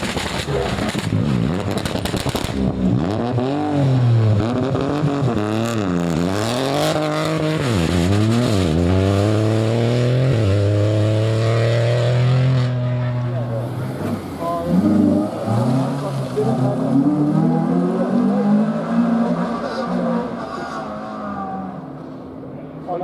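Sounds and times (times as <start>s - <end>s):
engine crackles: 0.0s - 3.2s
rally car engine revving: 0.0s - 21.9s.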